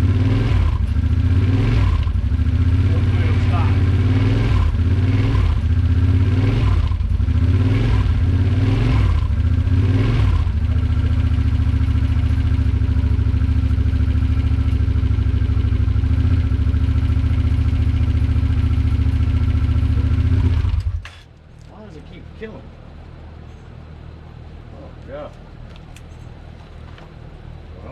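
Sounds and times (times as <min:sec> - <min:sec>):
engine revving and idling: 0:00.0 - 0:21.1.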